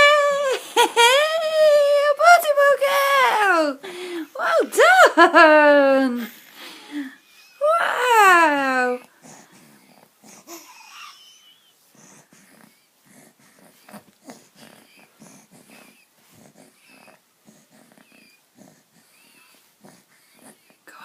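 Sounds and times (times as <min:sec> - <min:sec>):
baby wheezy breathing: 0:09.1 - 0:20.8
baby squeaks: 0:10.6 - 0:11.6.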